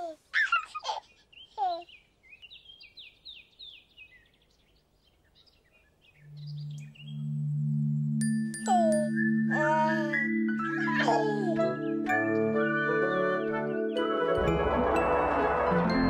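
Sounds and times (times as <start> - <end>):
low musical chord: 6.3 - 16.0.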